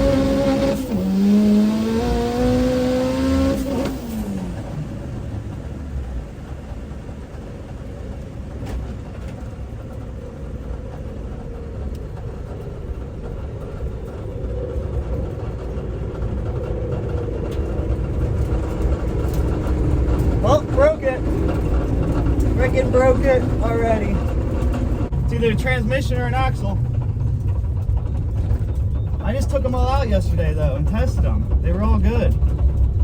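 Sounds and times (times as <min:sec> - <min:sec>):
turbocharged car engine pulling hard: 0:00.0 - 0:07.0, 0:15.3 - 0:33.0
steady low rumble: 0:04.2 - 0:33.0.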